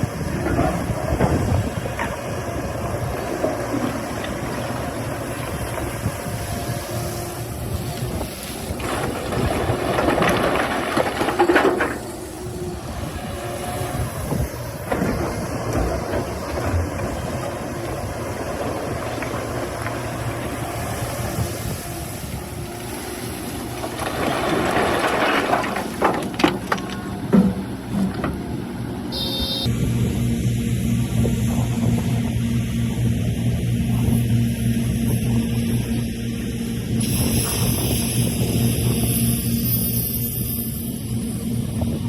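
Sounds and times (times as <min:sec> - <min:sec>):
hydraulic excavator running: 0:00.0 - 0:42.0
noisy scraping: 0:00.4 - 0:29.7.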